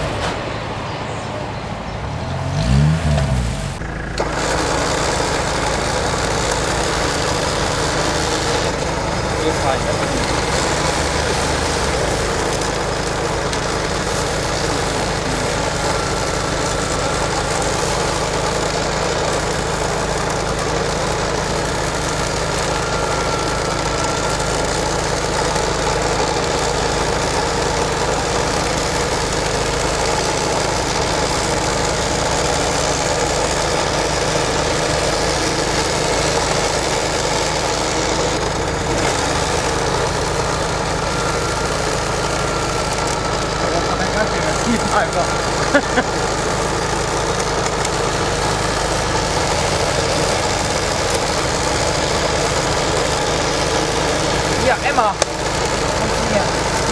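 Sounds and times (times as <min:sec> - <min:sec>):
vehicle engine running at low revs: 0:00.0 - 0:56.9.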